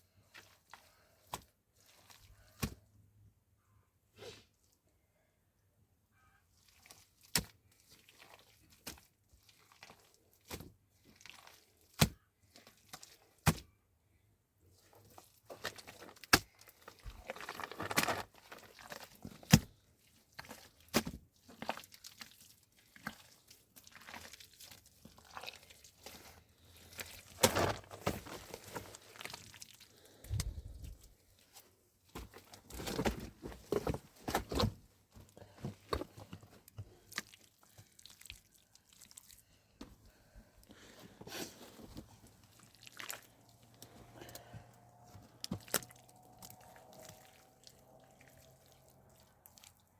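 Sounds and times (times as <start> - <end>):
rustling and crinkling: 14.7 - 49.7.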